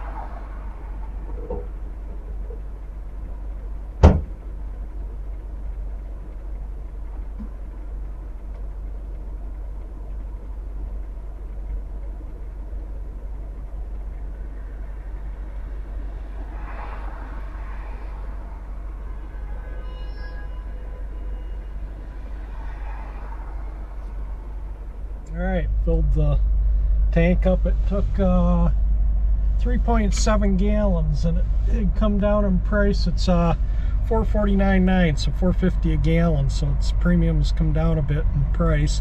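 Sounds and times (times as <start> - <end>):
car rumble: 0.0 - 39.0
sharp loud thump: 4.0 - 4.4.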